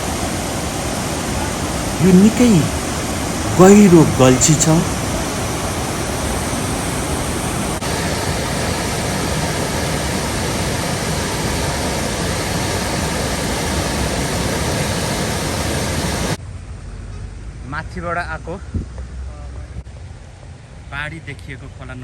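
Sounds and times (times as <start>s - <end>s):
floodwater rushing: 0.0s - 16.2s.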